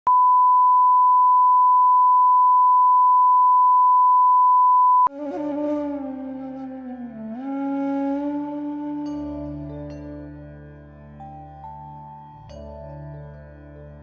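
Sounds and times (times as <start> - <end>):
instrumental music with gliding notes: 5.1 - 14.0.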